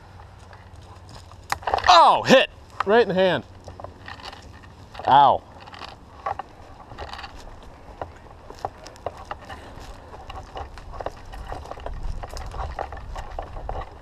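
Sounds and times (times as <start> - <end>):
wind rumble: 3.4 - 14.0.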